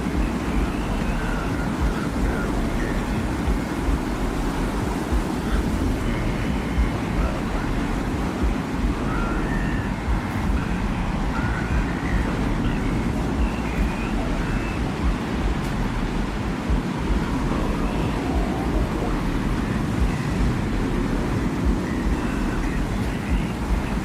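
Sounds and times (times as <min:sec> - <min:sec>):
desert wind rushing: 0:00.0 - 0:24.0
faint high tones: 0:00.0 - 0:24.0
deep low rumble: 0:00.1 - 0:24.0.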